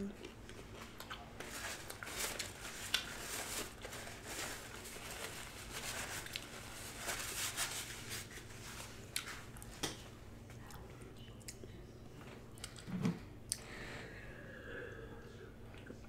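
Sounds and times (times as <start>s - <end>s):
paper napkin crinkling: 0.7s - 9.6s.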